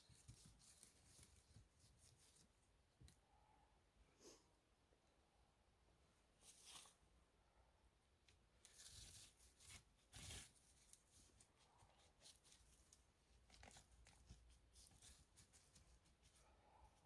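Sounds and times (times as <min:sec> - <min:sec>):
rustling and crackling: 0:00.0 - 0:03.2, 0:08.4 - 0:17.0.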